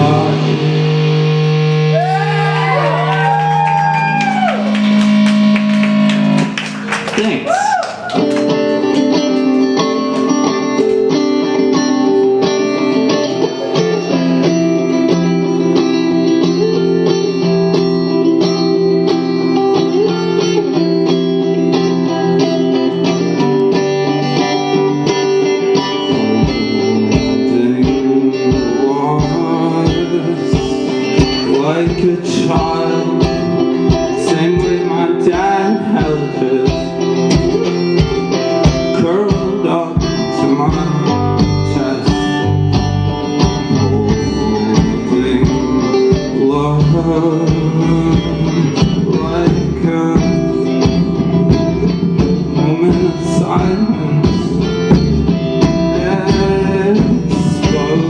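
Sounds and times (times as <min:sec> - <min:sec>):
guitars holding chords: 0:00.0 - 0:58.0
live band playing: 0:00.0 - 0:58.0
steady low beat: 0:36.0 - 0:58.0.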